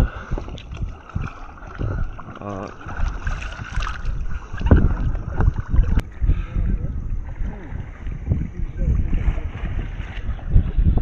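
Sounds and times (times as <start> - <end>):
river water: 0.0 - 11.0
wind buffeting microphone: 0.0 - 11.0.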